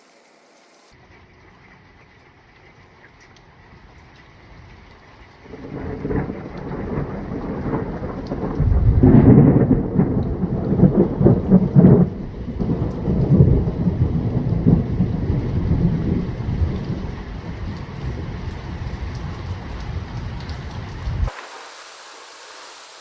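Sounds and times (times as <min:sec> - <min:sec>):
thunder rolling: 0:05.4 - 0:21.3.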